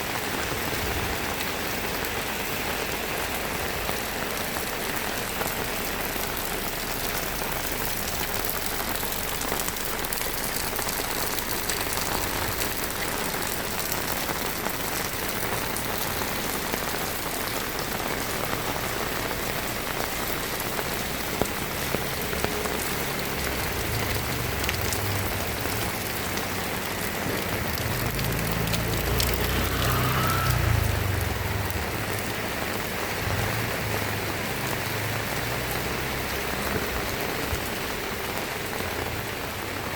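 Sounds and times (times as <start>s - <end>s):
heavy rain falling: 0.0s - 39.9s
low rumble: 23.6s - 32.6s.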